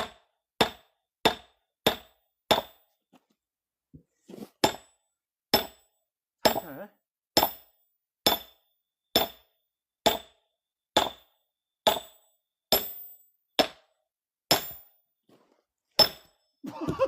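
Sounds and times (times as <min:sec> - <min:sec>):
hammer tapping steel wedge: 0:06.4 - 0:06.8, 0:07.4 - 0:08.6.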